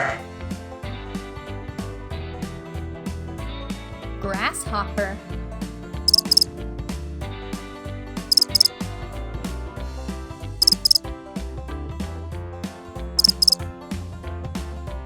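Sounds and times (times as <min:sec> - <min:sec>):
grasshopper chirping: 0:06.1 - 0:06.4, 0:08.3 - 0:08.7, 0:10.6 - 0:11.0, 0:13.2 - 0:13.6.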